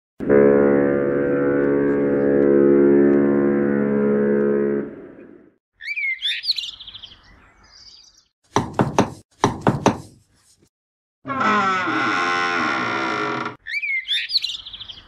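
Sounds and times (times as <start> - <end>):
low droning tone: 0.2 - 5.6
knocking on small door: 8.6 - 10.0.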